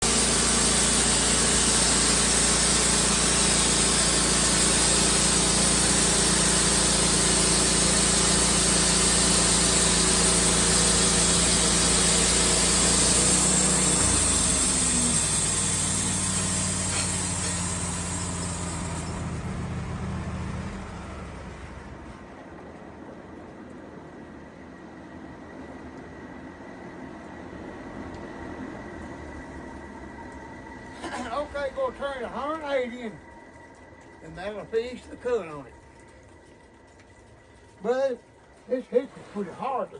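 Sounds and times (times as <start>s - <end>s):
engine saw cutting log: 0.0s - 22.3s.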